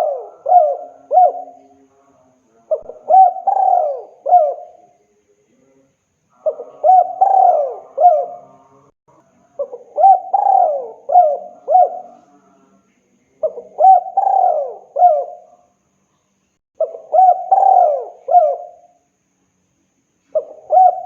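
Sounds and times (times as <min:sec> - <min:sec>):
dove cooing: 0:00.0 - 0:01.6, 0:02.7 - 0:04.8, 0:06.4 - 0:08.6, 0:09.6 - 0:12.2, 0:13.4 - 0:15.6, 0:16.8 - 0:19.0, 0:20.3 - 0:21.0.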